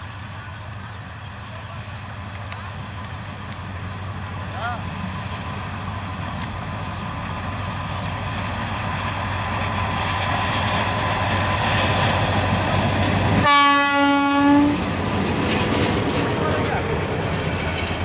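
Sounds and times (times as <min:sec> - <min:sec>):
diesel locomotive rumble: 0:00.0 - 0:18.0
train horn blast: 0:13.4 - 0:14.8.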